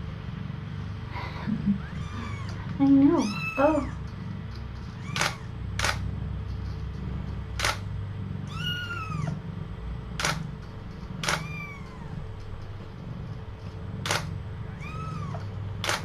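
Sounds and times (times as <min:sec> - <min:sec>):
kitten mewing: 0:01.5 - 0:04.0, 0:04.9 - 0:05.5, 0:08.5 - 0:09.4, 0:11.2 - 0:12.2.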